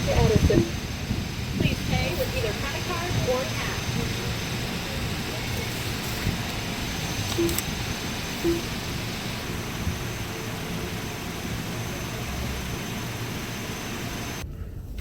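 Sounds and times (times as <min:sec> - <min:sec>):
car wash machinery rushing: 0:00.0 - 0:14.5
short beep: 0:08.4 - 0:08.8.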